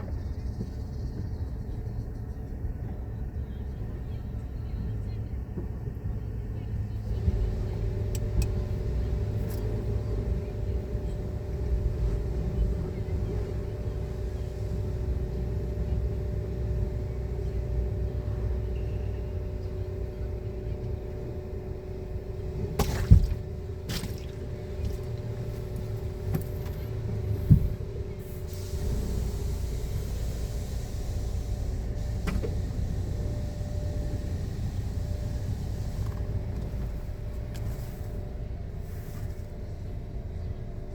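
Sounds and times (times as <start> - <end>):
car wash motor hum: 0.0 - 40.9
machinery clunks: 22.6 - 25.3.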